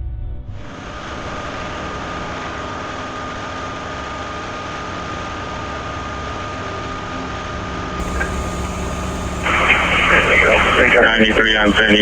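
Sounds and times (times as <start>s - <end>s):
fire engine pump running: 8.0s - 12.0s
thin whine: 8.0s - 12.0s.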